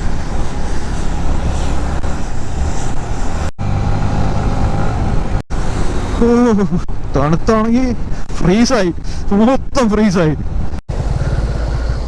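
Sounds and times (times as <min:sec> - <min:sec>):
wind noise on microphone: 0:00.0 - 0:07.2, 0:07.8 - 0:12.0
motorcycle engine running: 0:10.9 - 0:12.0.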